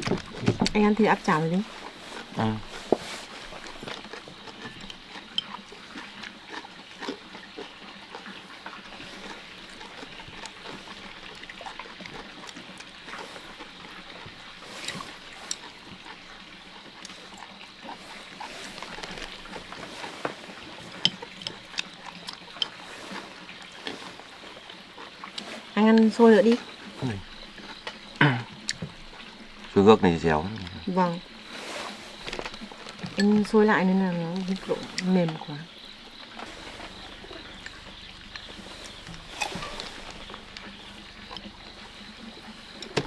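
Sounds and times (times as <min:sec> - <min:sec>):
people chewing: 0:00.0 - 0:43.0
chopsticks clicking against bowls: 0:03.6 - 0:07.2, 0:20.8 - 0:23.2, 0:36.4 - 0:43.0.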